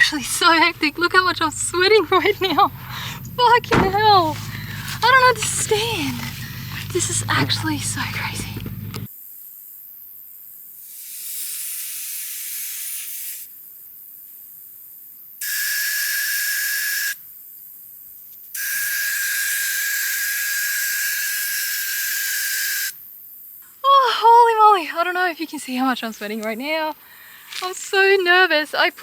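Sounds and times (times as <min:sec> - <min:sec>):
air hissing from tyre valve: 0:04.2 - 0:09.1, 0:10.8 - 0:13.6, 0:18.5 - 0:23.1
whistle in hiss: 0:10.8 - 0:13.6, 0:15.4 - 0:17.2, 0:18.6 - 0:23.0.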